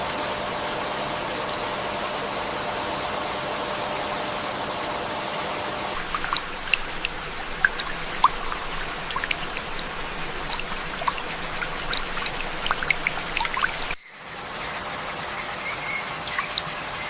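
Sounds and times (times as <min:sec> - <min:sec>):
steady rainfall: 0:00.0 - 0:17.0
drops dripping and splashing: 0:05.6 - 0:14.0, 0:16.2 - 0:16.8.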